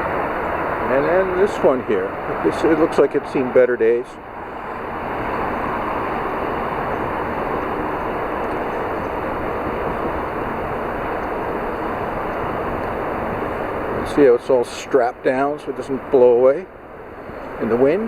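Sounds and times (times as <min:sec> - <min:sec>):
wind on microphone: 0:04.2 - 0:14.3, 0:15.7 - 0:18.0.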